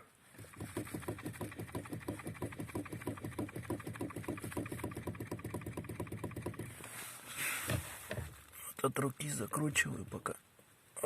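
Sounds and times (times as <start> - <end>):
steering shaft knocking and rattling: 0.4 - 6.8.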